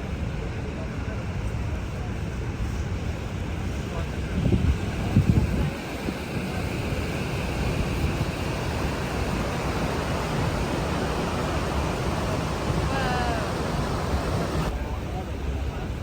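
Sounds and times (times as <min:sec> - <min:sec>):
wind on microphone: 0:03.6 - 0:14.7
waterfall roaring: 0:05.8 - 0:14.7
high gliding call: 0:09.0 - 0:14.7.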